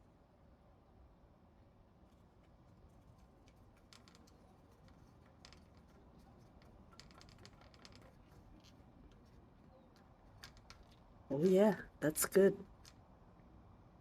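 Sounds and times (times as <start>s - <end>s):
cat claws scratching at door: 2.2s - 11.2s.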